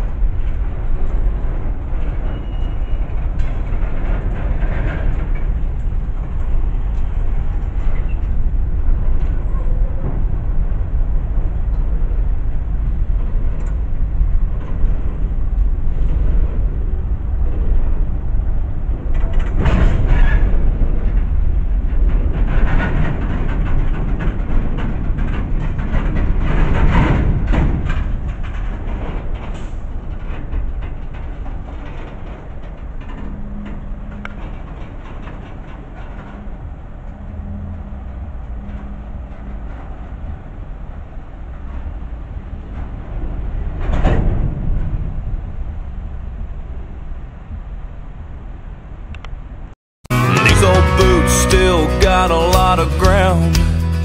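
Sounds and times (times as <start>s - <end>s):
steel wheels rumbling on rail: 0.0s - 54.0s
clanks and knocks: 19.1s - 36.4s.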